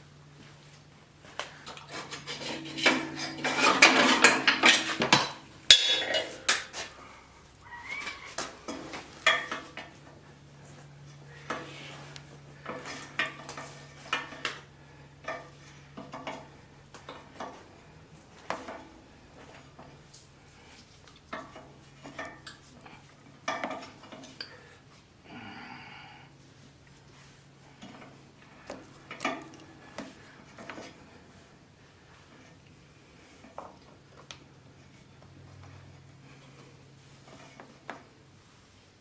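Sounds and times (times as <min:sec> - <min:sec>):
faint steady hum: 0:00.0 - 0:39.0
metal parts clinking: 0:01.9 - 0:06.7.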